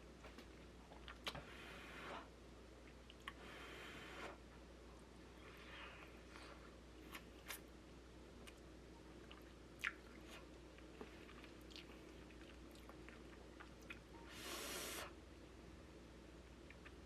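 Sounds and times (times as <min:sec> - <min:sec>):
chewing food: 0:00.4 - 0:01.4, 0:08.4 - 0:14.2.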